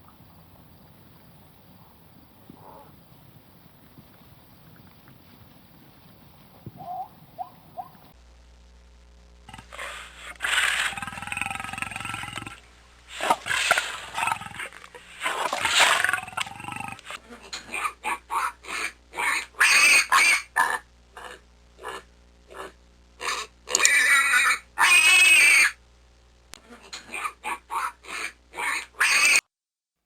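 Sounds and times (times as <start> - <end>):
animal calling loudly: 6.8 - 8.1, 9.5 - 25.8, 27.1 - 29.4.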